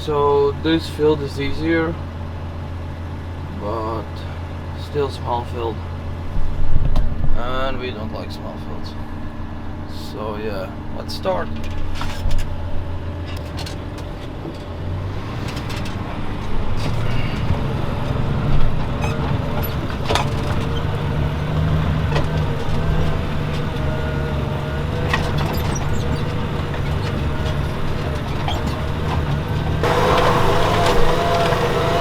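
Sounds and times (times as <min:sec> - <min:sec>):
tractor diesel engine under load: 0:00.0 - 0:32.0
knocks and rattles: 0:15.4 - 0:32.0.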